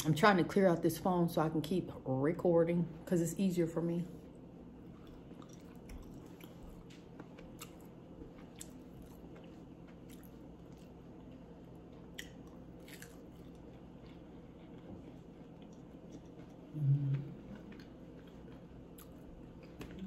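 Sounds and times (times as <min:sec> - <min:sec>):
crunching and chewing: 0:04.6 - 0:20.0.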